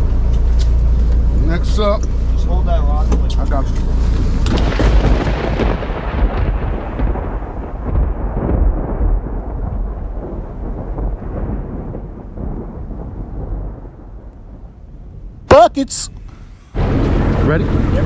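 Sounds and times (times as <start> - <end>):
wind rumbling on microphone: 4.0 - 15.5.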